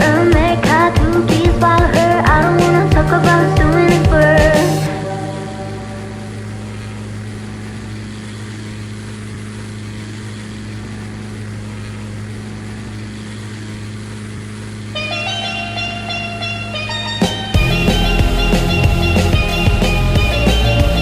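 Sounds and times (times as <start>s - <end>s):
music: 0.0s - 6.7s, 15.0s - 21.0s
twin piston aircraft engines droning: 0.0s - 21.0s.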